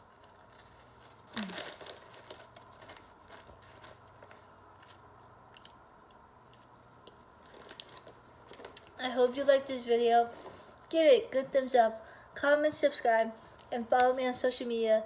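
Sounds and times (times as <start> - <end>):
packaging crinkling: 0.1 - 5.8, 7.0 - 9.0
person chewing: 4.8 - 9.0.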